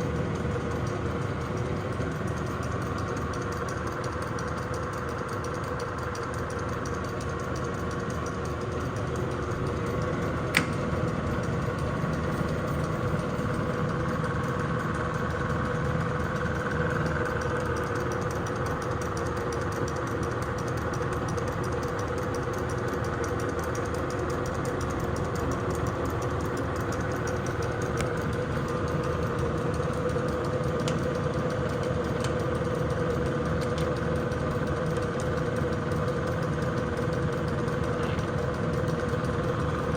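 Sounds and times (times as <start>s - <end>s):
lathe humming: 0.0s - 39.9s
sharp click: 10.4s - 11.0s.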